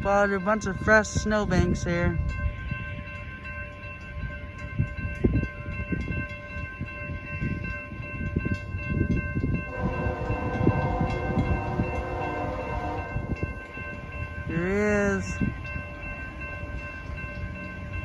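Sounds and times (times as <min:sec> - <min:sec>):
train rumble: 0:00.0 - 0:18.0
locomotive horn: 0:09.7 - 0:13.5.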